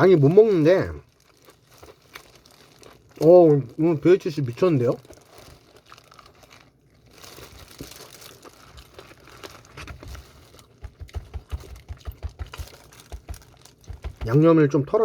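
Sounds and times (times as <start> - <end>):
crinkly rustling: 0.0 - 15.0
fried chicken crunching: 0.0 - 15.0
soft rhythmic chewing thuds: 5.0 - 15.0.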